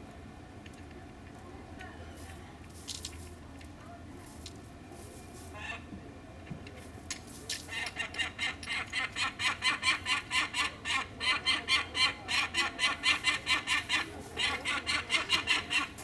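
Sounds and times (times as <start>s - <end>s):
falcon cacking: 7.7s - 16.0s.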